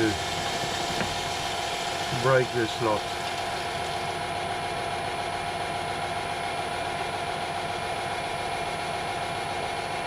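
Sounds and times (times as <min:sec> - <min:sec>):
metal lathe humming: 0:00.0 - 0:04.4.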